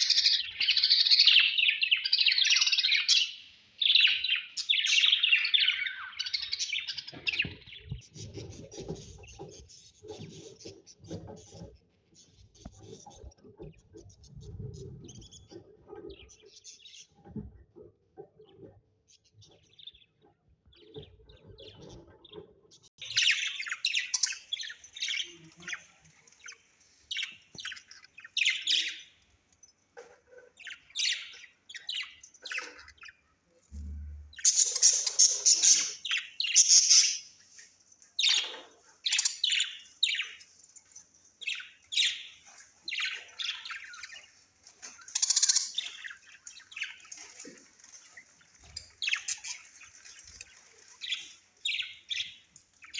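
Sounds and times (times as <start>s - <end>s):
faint scratching and rustling: 7.1s - 22.8s, 37.2s - 52.9s
parrots chirping and squawking: 23.0s - 29.3s, 30.0s - 33.4s, 34.3s - 37.6s, 41.4s - 52.9s.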